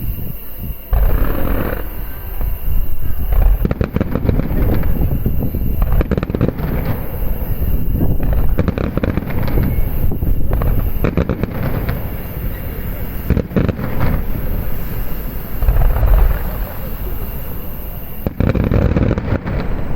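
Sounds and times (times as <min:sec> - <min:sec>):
fireworks booming: 0:00.0 - 0:19.9
sharp crackling reports: 0:00.0 - 0:19.9.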